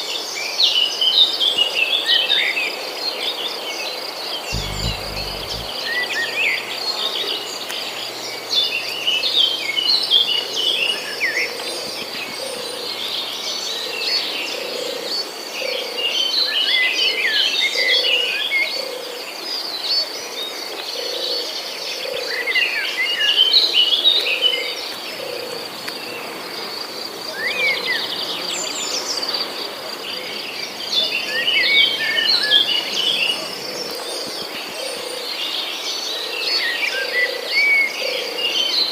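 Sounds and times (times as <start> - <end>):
soft low note: 4.6 - 14.3
birds chirping and twittering: 4.6 - 15.5.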